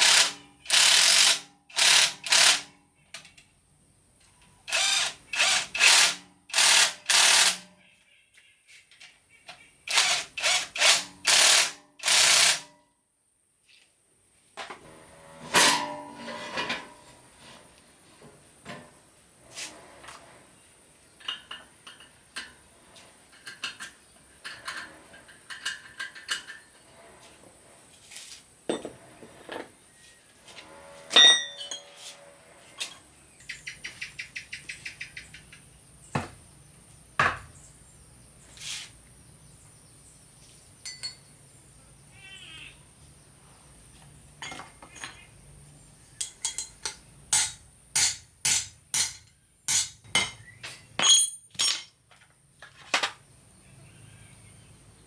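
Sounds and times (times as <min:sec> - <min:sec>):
hand tools clinking on metal: 0:31.1 - 0:32.2, 0:40.8 - 0:41.3, 0:44.4 - 0:45.3, 0:46.2 - 0:53.2.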